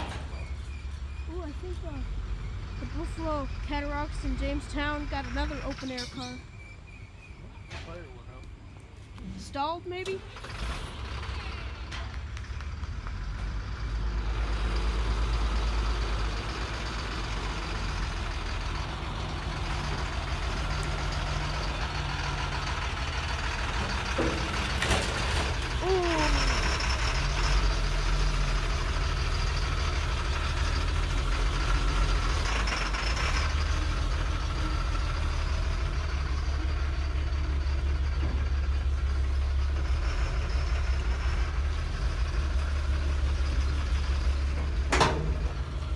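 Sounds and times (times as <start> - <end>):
heavy truck engine running: 0.0 - 45.9.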